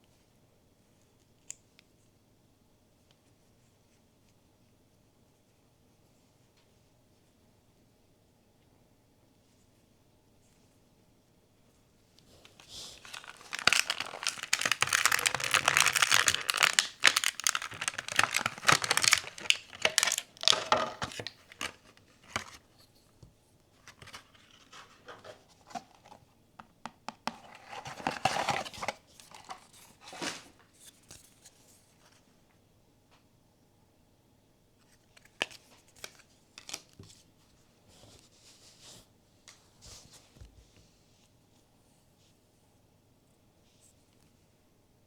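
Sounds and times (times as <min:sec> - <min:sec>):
packaging being torn and crinkled: 0:12.6 - 0:22.6, 0:23.8 - 0:25.1, 0:27.4 - 0:30.4, 0:35.2 - 0:36.9.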